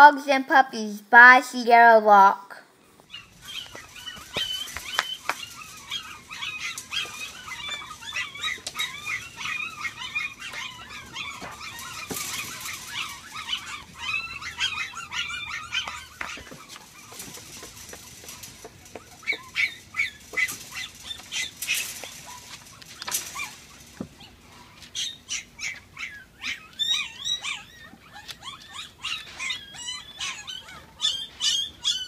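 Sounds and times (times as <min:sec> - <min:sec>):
puppies whimpering and squealing: 0:02.8 - 0:32.0.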